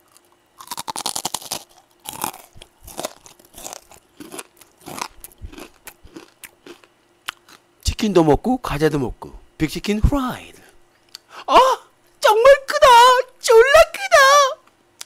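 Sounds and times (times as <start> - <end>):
crunching of fried chicken batter: 0.0 - 7.6.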